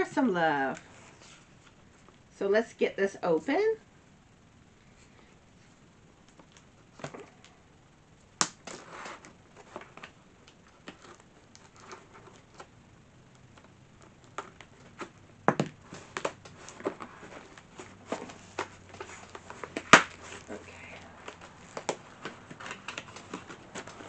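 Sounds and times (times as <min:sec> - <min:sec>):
tape and cardboard rustling: 0:08.4 - 0:12.8, 0:13.5 - 0:24.0.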